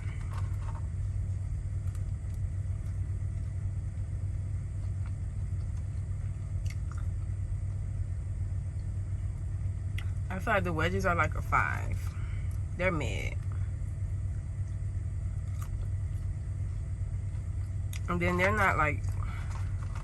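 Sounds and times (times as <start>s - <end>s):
faint chewing: 0.0s - 7.8s, 13.4s - 18.1s
truck engine idling: 0.0s - 20.0s.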